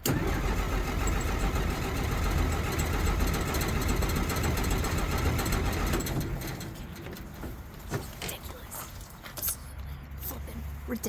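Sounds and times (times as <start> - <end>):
engine running unevenly and stalling: 0.0 - 7.9.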